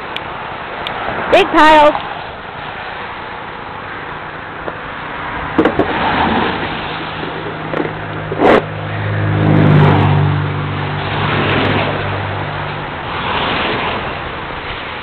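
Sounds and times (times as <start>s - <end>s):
engine running: 0.0s - 15.0s
sharp knocks: 5.6s - 6.0s.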